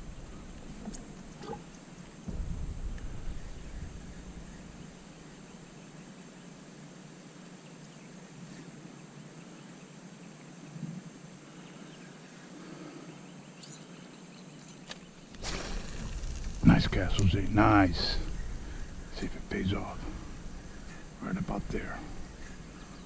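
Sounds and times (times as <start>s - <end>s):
soft low bump: 2.3s - 5.6s.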